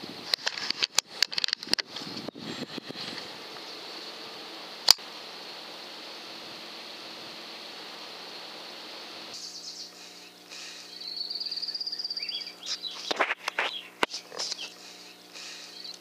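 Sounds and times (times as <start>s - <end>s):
steady hiss: 0.0s - 16.0s
small birds singing: 2.0s - 6.1s, 6.8s - 16.0s
sharp clicks: 4.8s - 5.0s
high bird trill: 9.4s - 16.0s.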